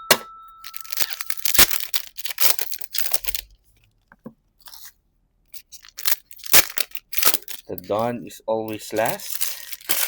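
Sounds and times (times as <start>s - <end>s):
foil wrappers tearing and crinkling: 0.7s - 3.5s, 4.6s - 5.0s, 5.6s - 10.0s.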